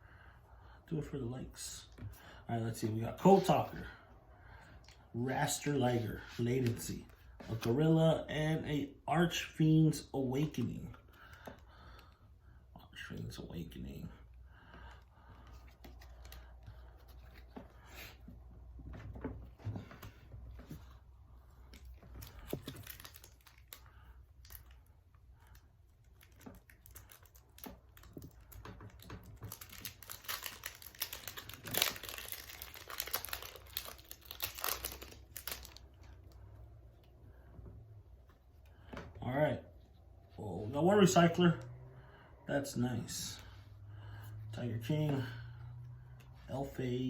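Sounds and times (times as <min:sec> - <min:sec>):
foil wrapper crinkling and tearing: 0:22.1 - 0:36.4.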